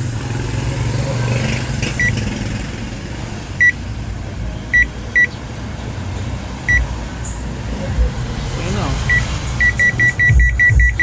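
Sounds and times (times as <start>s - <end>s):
washing machine short beeps: 4.8s - 5.3s, 9.1s - 11.0s.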